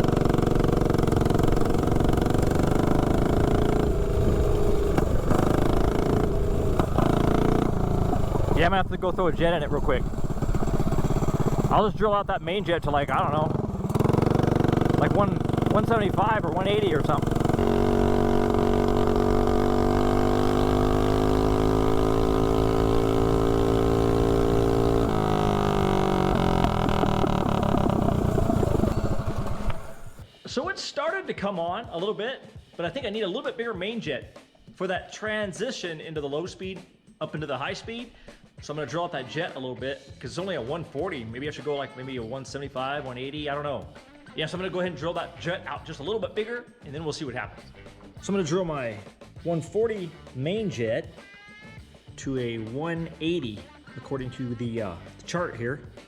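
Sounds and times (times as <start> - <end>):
mini bike engine running: 0.0 - 30.2.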